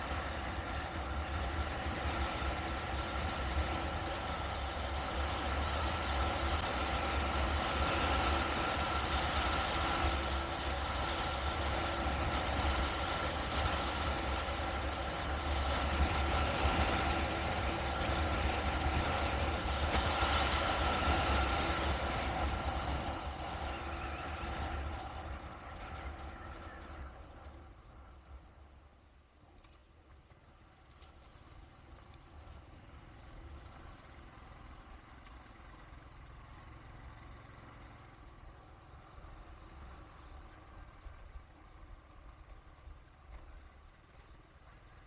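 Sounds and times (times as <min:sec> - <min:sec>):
vehicle road and engine noise: 0:00.0 - 0:45.0.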